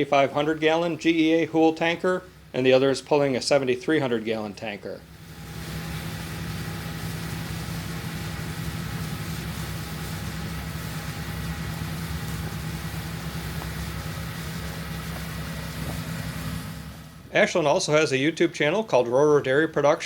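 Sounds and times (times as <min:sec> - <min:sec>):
tractor diesel engine humming: 0:05.1 - 0:17.4.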